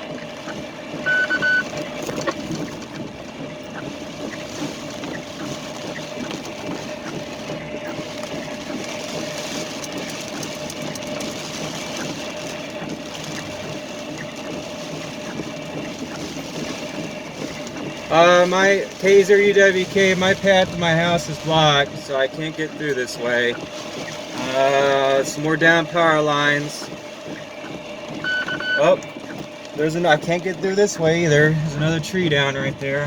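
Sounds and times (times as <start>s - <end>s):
truck engine and road noise: 0.0s - 33.0s
short high beep: 1.1s - 1.7s, 28.3s - 28.8s.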